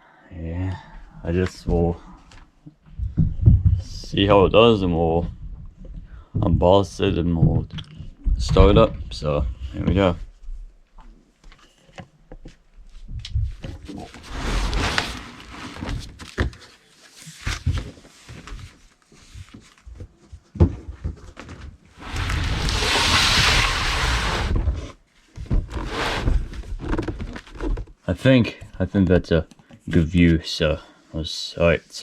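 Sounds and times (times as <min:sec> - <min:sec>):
handling knocks and thumps: 0:02.8 - 0:04.5, 0:05.2 - 0:10.2, 0:17.6 - 0:22.4
scraping rustle: 0:13.6 - 0:19.8, 0:21.9 - 0:25.0, 0:25.6 - 0:27.8.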